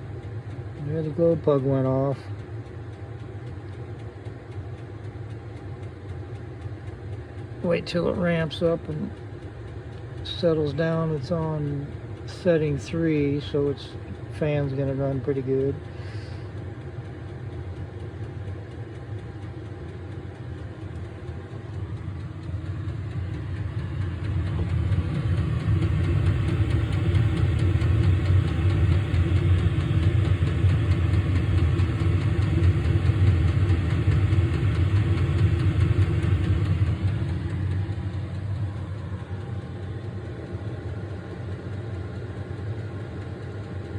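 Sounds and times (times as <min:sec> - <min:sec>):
air heater fan whirring: 0:00.0 - 0:43.9.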